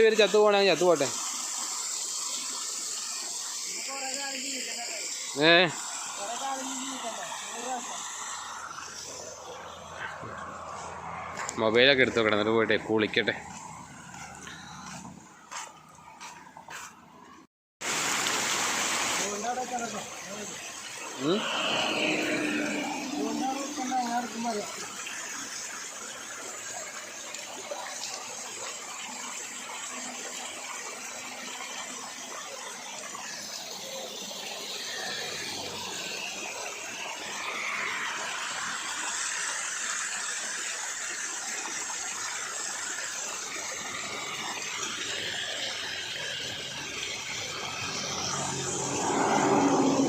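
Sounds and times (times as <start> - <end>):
water gushing from pipe: 0.0 - 50.0.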